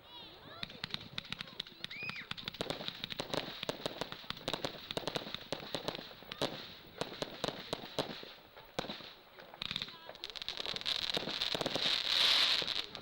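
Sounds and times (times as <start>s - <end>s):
fireworks crackling: 0.4s - 13.0s.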